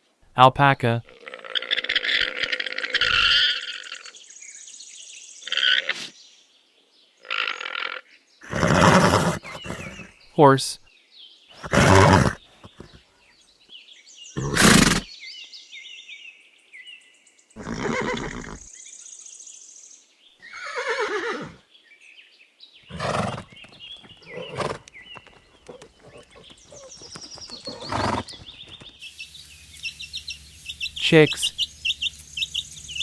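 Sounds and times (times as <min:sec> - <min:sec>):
horse whinnying: 0:01.4 - 0:04.1, 0:08.4 - 0:10.1, 0:11.6 - 0:13.0, 0:14.4 - 0:15.1, 0:17.6 - 0:18.7, 0:20.4 - 0:21.6, 0:22.9 - 0:23.6, 0:24.2 - 0:24.9, 0:25.7 - 0:28.4.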